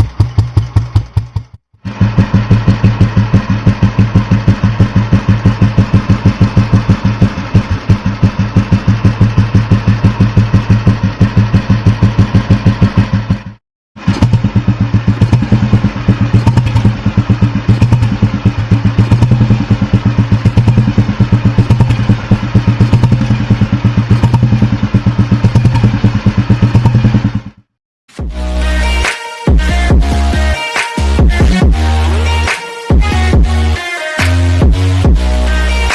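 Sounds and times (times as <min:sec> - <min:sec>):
motorcycle engine idling thump: 0:00.0 - 0:27.7.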